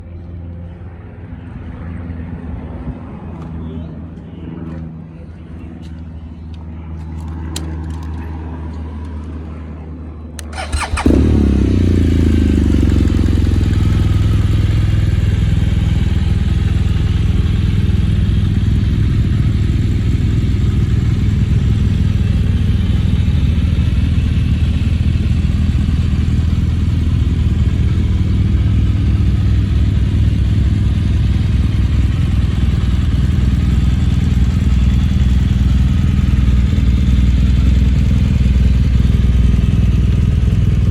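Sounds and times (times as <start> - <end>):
motorcycle engine starting and idling: 10.4 - 40.9.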